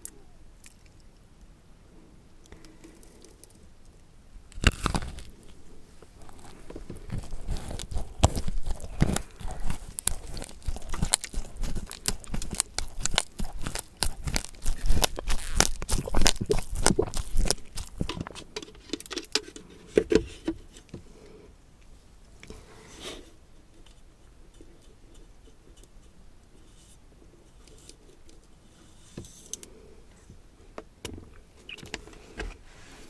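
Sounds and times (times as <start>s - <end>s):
crunching food being eaten: 4.6s - 18.4s.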